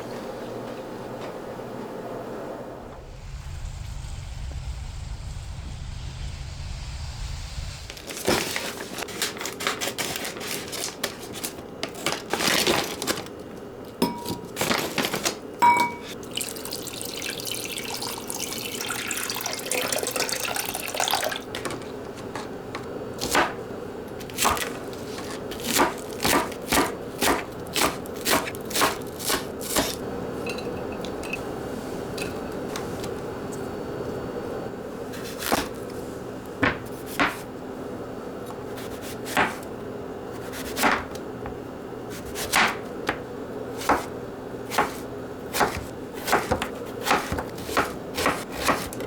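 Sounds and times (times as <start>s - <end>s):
kitchenware clicking and clinking: 8.2s - 31.5s, 32.1s - 33.2s
water running in a sink: 14.0s - 23.4s, 24.1s - 30.0s.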